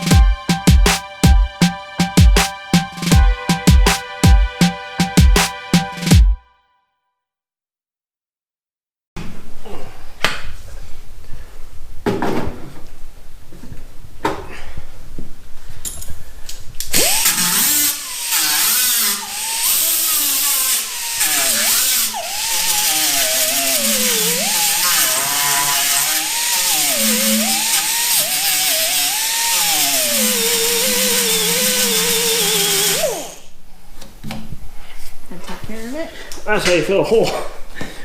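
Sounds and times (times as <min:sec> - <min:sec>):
electric grinder grinding metal: 0:17.0 - 0:33.5.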